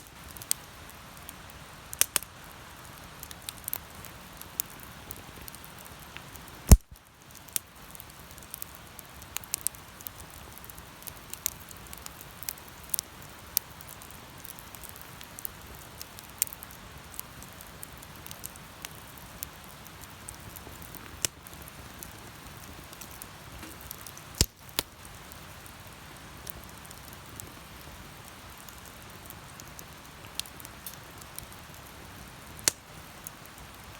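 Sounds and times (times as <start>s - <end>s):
bonfire crackling and hissing: 0.0s - 33.9s
loud wood crack: 6.7s - 7.0s.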